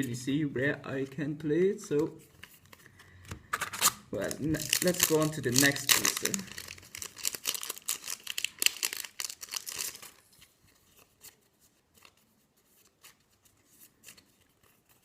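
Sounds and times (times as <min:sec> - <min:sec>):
foil pack crinkling and tearing: 0:03.6 - 0:10.3.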